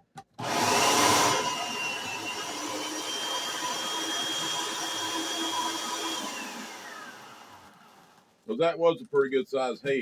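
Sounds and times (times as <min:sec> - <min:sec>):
kitchen shredder motor whining: 0:00.4 - 0:08.4.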